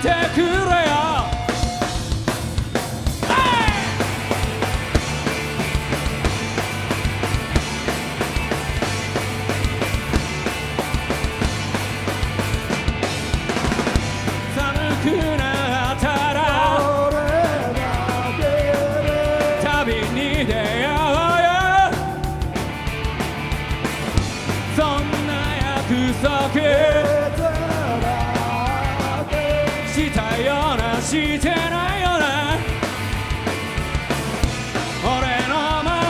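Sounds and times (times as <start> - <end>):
bass: 0.0 - 36.0
drums: 0.0 - 36.0.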